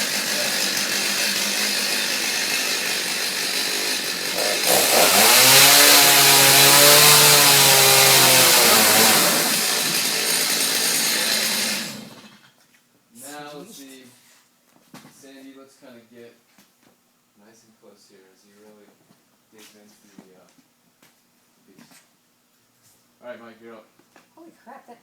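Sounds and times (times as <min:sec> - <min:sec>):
chainsaw cutting wood: 0:00.0 - 0:12.5.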